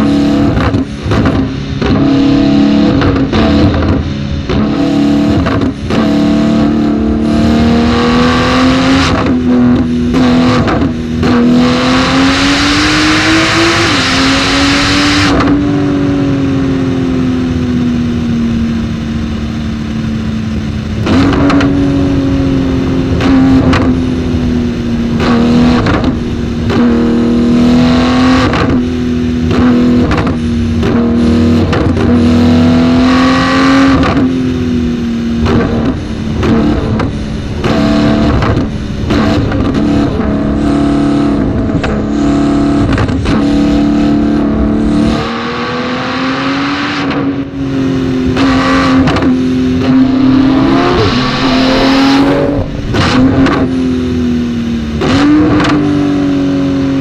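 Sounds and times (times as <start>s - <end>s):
car engine revving hard: 0.0s - 57.0s
exhaust cracks: 20.8s - 32.3s, 35.4s - 45.2s, 48.3s - 55.8s
hissy rushing noise: 35.8s - 40.9s, 49.6s - 54.6s.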